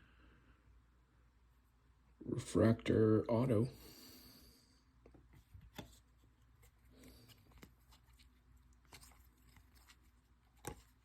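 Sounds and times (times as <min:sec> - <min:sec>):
trading cards rustling: 0:05.7 - 0:11.0.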